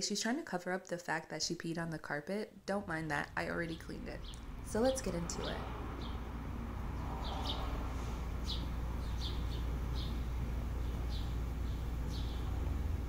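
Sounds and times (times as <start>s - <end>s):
steady low hum: 2.6s - 13.0s
small birds chirping: 3.6s - 13.0s.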